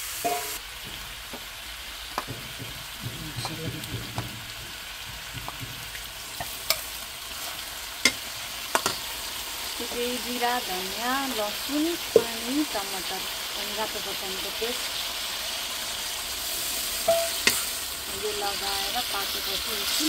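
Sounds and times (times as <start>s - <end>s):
food sizzling in a pan: 0.0s - 20.0s
steel ladle clinking: 0.2s - 1.1s, 8.0s - 9.1s, 17.0s - 17.7s.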